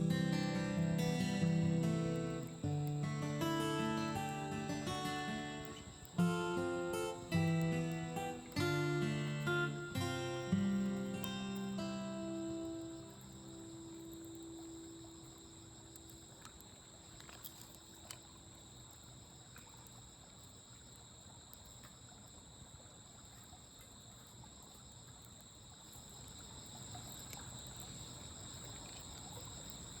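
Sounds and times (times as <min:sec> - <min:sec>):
campfire crackling and popping: 0:00.0 - 0:18.4
insects chirring: 0:00.0 - 0:30.0.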